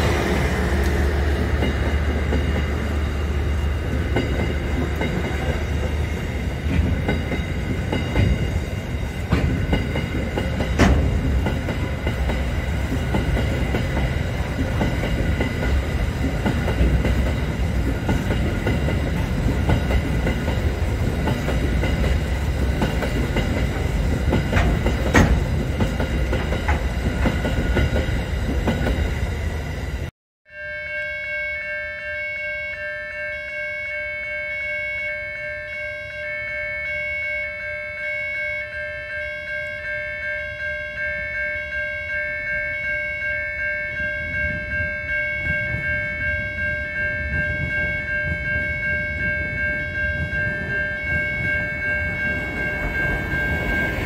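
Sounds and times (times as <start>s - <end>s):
wheels clacking over rail joints: 0.0s - 29.4s
freight train rumbling past: 0.0s - 30.1s, 40.6s - 54.0s
high-pitched ringing: 38.6s - 54.0s.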